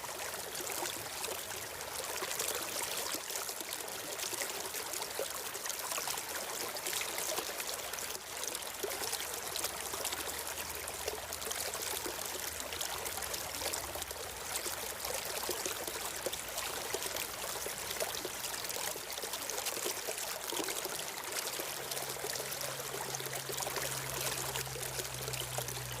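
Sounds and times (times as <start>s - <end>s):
stream of water flowing: 0.0s - 26.0s.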